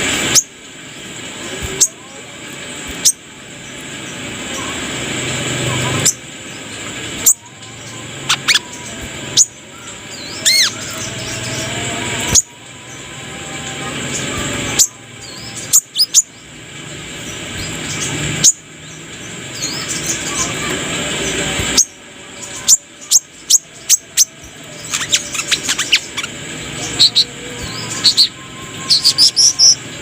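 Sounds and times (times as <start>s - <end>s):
bird chipping calls: 7.2s - 12.5s, 22.5s - 29.8s.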